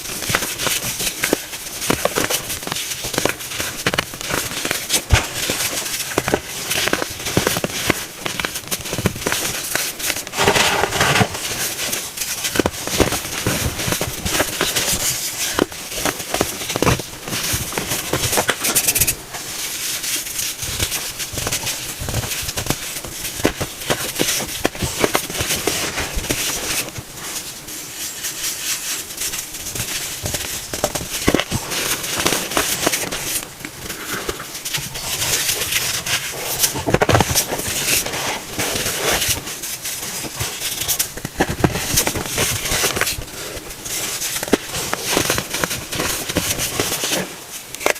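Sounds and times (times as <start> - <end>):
crackling and crunching: 0.0 - 27.1.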